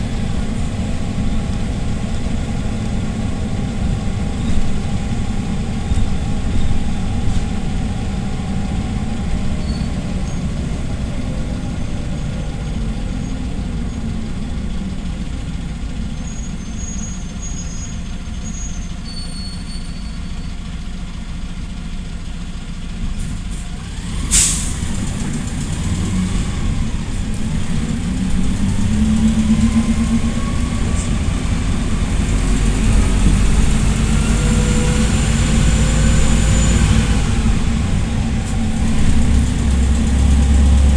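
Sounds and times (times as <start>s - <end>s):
bus engine running: 0.0s - 40.9s
pneumatic air hiss: 24.3s - 24.9s.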